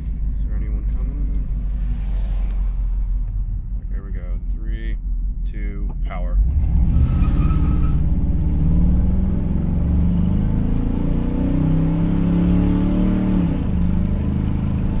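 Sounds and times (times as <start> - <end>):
engine accelerating at full throttle: 6.4 - 15.0.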